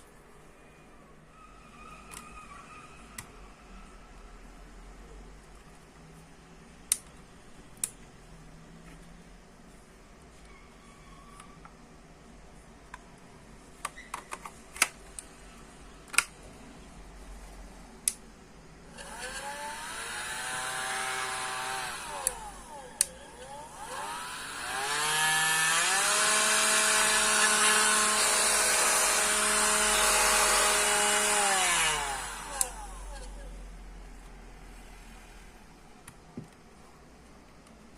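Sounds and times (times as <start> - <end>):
vacuum cleaner motor whining: 19.0 - 33.3.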